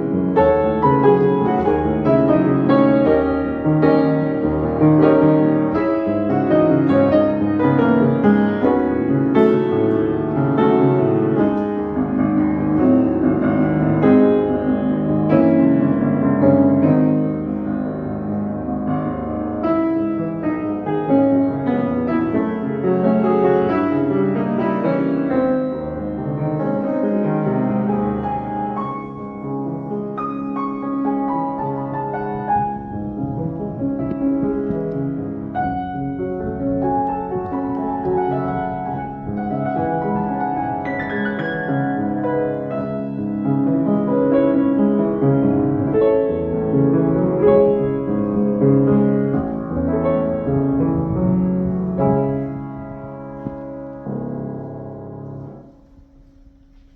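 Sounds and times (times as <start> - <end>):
piano piece: 0.0 - 56.9.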